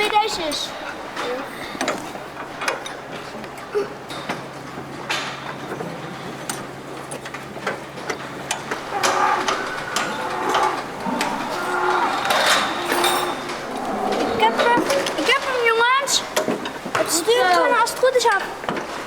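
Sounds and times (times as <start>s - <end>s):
children humming and grunting: 3.7s - 4.1s, 8.8s - 16.4s.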